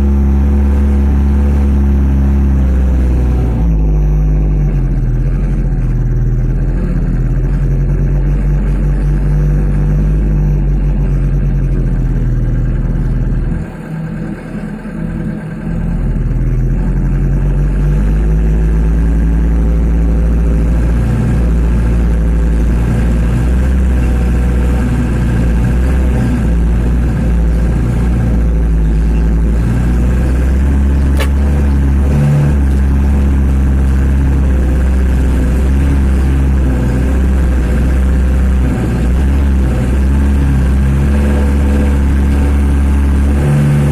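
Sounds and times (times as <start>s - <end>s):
truck diesel engine running: 0.0s - 43.9s.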